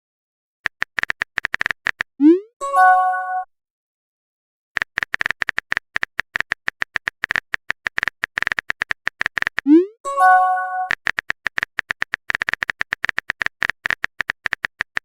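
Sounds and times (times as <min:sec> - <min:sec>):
phone keyboard typing clicks: 0:00.6 - 0:02.1, 0:04.8 - 0:09.7, 0:10.8 - 0:15.0
message notification chime: 0:02.2 - 0:03.5, 0:09.8 - 0:10.9.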